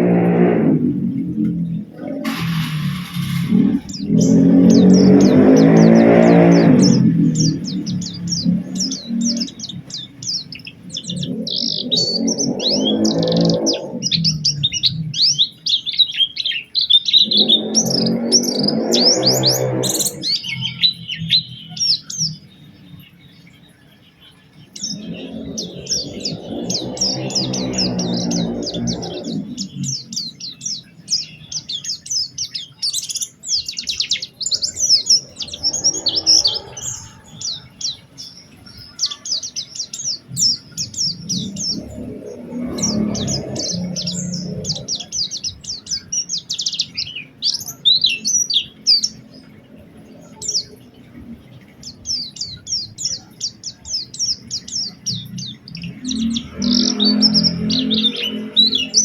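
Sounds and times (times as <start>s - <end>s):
low-pitched background sound: 0.0s - 14.9s
bird chirping and trilling: 0.0s - 59.0s.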